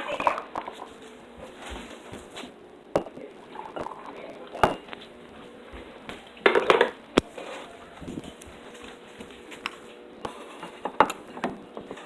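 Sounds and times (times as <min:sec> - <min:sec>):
dishes and cups knocking and clinking: 0:03.0 - 0:05.0, 0:06.4 - 0:07.0.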